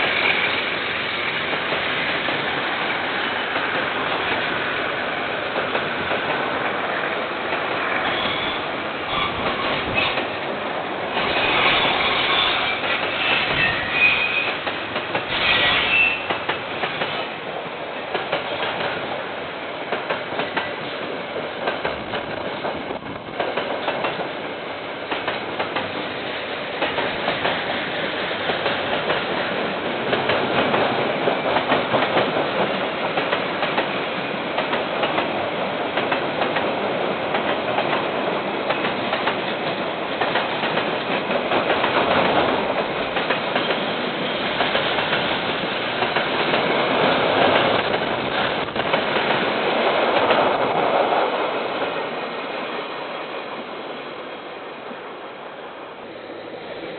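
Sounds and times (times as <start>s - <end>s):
train wagons rolling past: 0.0s - 56.9s
wheel squeal: 11.4s - 14.6s, 15.3s - 16.3s.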